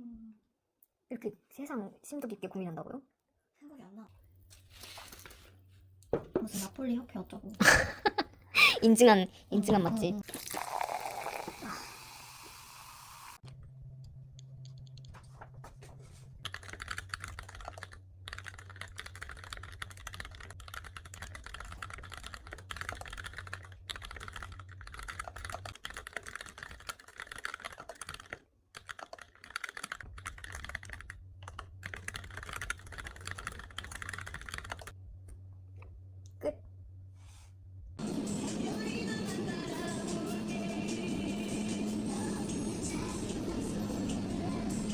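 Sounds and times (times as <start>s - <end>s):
typing on computer keyboard: 16.4s - 35.0s.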